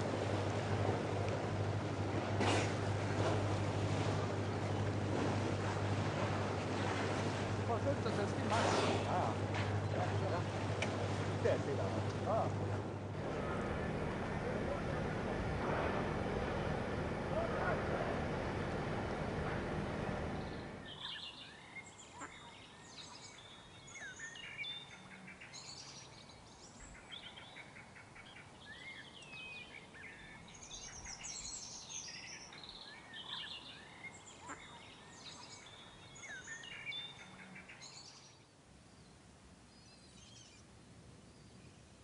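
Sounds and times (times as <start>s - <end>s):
low rumbling noise: 0.0s - 21.1s
songbirds singing: 5.8s - 42.0s.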